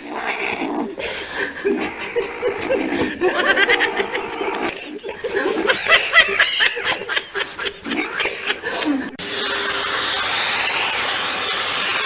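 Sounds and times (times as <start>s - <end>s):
person laughing and giggling: 1.1s - 9.2s.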